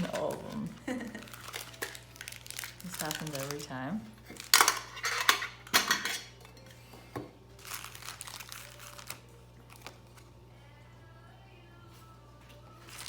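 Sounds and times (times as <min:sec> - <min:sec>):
metal tins clinking: 0:04.3 - 0:06.7.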